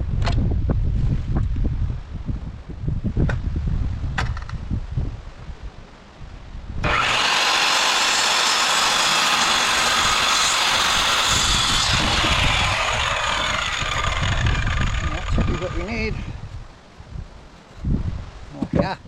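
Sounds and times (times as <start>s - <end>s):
electric power tool whining: 6.8s - 16.2s.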